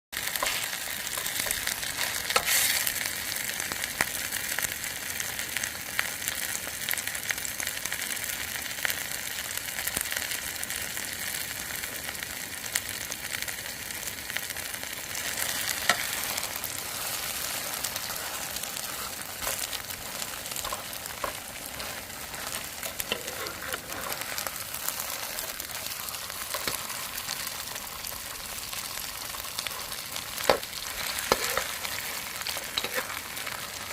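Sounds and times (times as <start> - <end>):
pancake sizzling in oil: 0.2 - 33.9.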